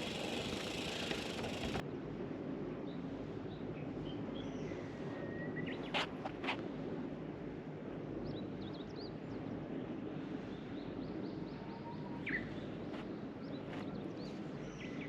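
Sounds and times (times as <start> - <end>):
birds chirping: 0.0 - 1.8.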